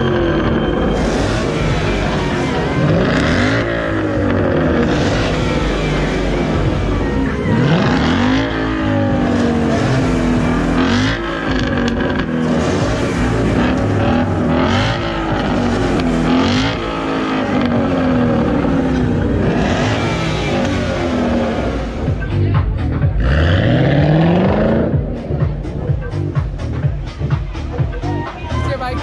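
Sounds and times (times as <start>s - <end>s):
car engines revving hard: 0.0s - 29.0s.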